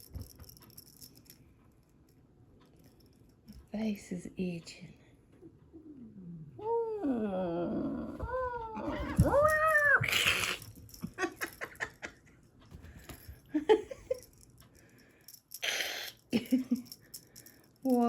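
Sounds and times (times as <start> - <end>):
cat hissing: 10.0 - 10.7.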